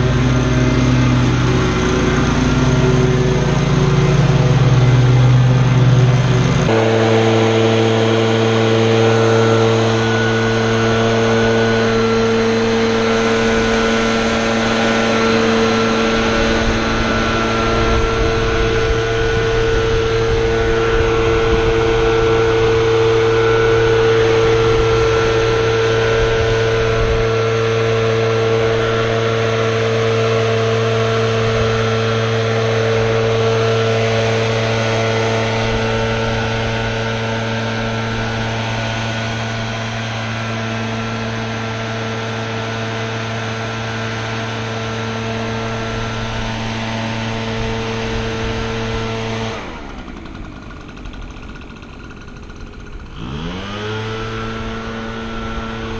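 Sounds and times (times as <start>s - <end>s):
small gasoline engine running: 0.0s - 55.9s.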